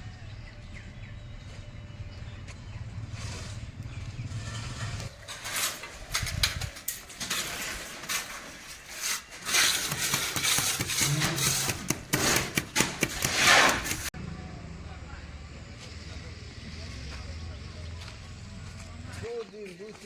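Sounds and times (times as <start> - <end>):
metal objects clattering: 3.2 - 14.1.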